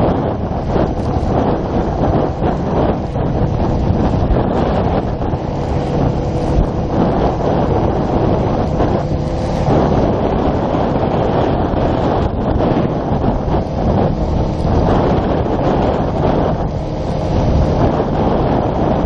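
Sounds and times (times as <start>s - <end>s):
faint motorcycle engine: 0.0s - 19.0s
wind buffeting microphone: 0.0s - 19.0s.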